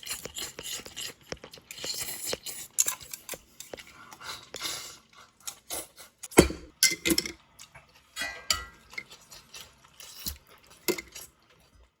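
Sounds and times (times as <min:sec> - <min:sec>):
tableware and utensils clinking: 0:06.3 - 0:07.4, 0:08.2 - 0:09.3.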